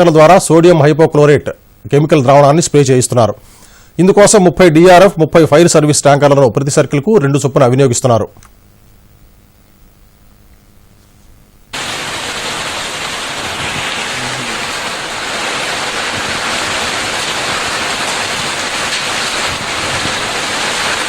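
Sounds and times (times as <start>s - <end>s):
water rushing hiss: 11.7s - 21.0s.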